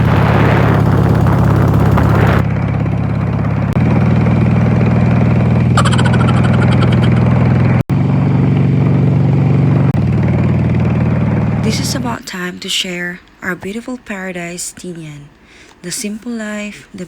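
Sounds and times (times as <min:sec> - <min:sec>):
short high-pitched chirp: 0:05.8 - 0:07.3.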